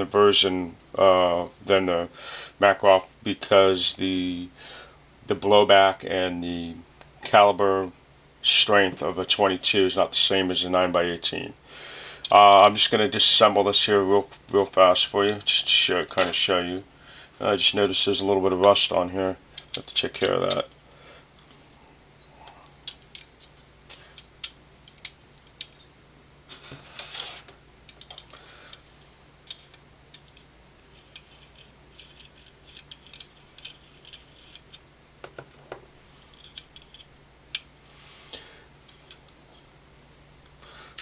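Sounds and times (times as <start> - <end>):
metal parts scraping: 30.8 - 34.8, 36.1 - 37.1.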